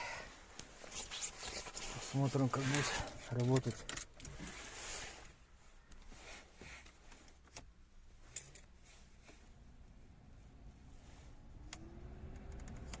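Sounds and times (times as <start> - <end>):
handling rustles: 0.5 - 9.5.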